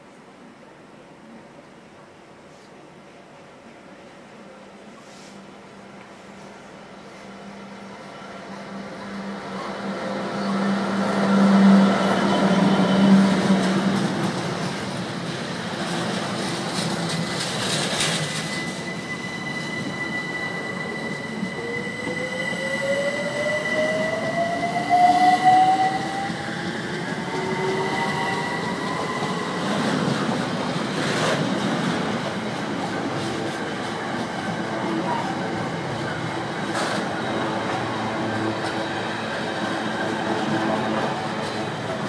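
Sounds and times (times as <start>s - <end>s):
train wagons rolling on rails: 9.5s - 22.3s, 22.9s - 42.0s
high-pitched wheel squeal: 18.2s - 23.4s.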